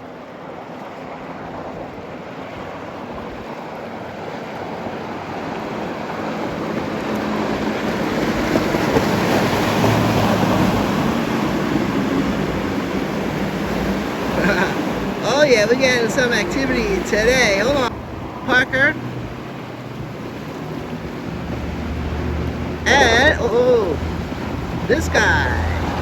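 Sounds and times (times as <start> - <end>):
boat hulls rushing through water: 0.0 - 26.0
motorboat engines: 0.0 - 26.0
low engine drone: 9.8 - 26.0.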